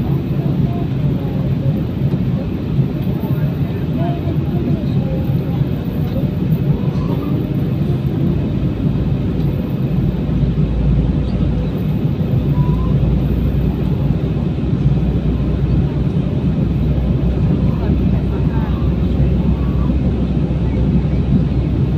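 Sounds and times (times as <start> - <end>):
airliner cabin drone: 0.0 - 21.9.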